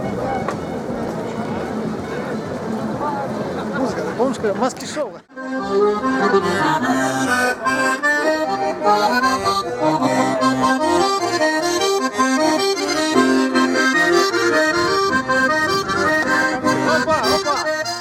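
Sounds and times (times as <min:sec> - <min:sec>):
lively accordion tune: 0:05.2 - 0:18.0.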